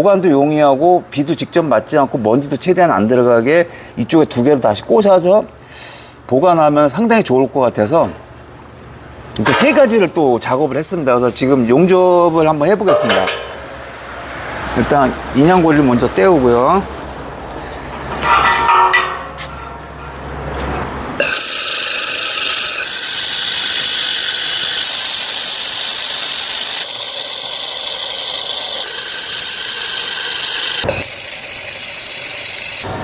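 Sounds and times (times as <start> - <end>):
electric arc welding hiss: 21.2 - 32.9.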